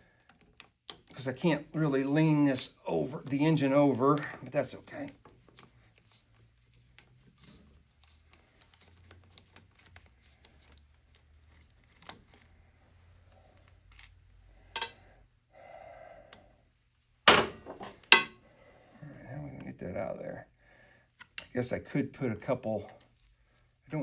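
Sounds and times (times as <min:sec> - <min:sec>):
tools scraping and ticking: 0:14.8 - 0:15.0, 0:17.7 - 0:18.4.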